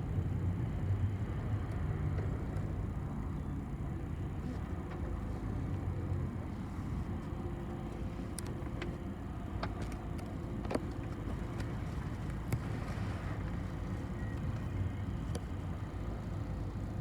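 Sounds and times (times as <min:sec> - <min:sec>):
bus engine and road rumble: 0:00.0 - 0:17.0
clicks and rattles of bus body: 0:04.1 - 0:06.0, 0:06.8 - 0:15.9.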